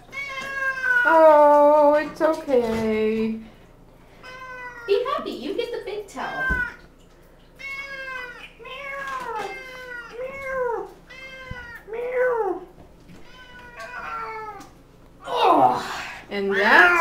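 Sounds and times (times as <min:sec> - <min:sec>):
cat meowing: 0:00.0 - 0:01.2, 0:04.2 - 0:04.9, 0:07.6 - 0:12.6, 0:13.2 - 0:14.7, 0:16.5 - 0:17.0.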